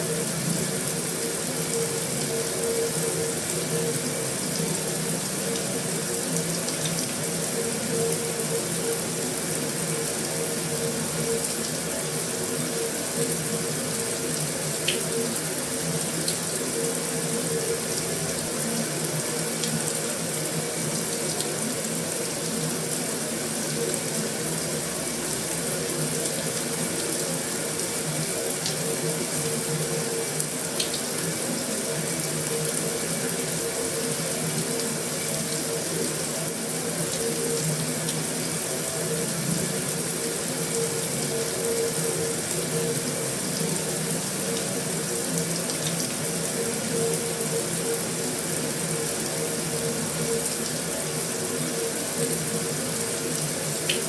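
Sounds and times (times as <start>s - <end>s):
heavy rain on a metal roof: 0.1s - 54.0s
drip ticks: 14.8s - 15.1s, 30.4s - 31.1s.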